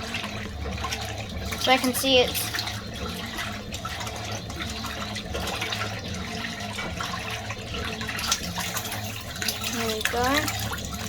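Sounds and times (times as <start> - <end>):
low motor hum: 0.0 - 11.0
washing machine water sloshing: 0.0 - 11.0.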